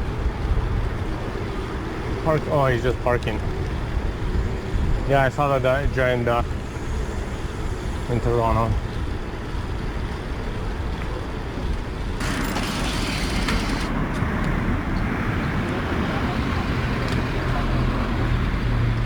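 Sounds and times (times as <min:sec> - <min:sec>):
low engine hum: 0:00.0 - 0:19.0
vehicle engines running: 0:00.0 - 0:19.0
tyre noise: 0:11.7 - 0:14.6.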